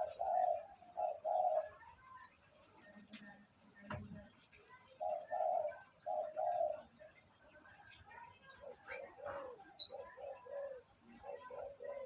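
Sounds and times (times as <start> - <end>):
bird cooing: 0.0 - 2.2, 4.7 - 7.2, 8.4 - 12.0.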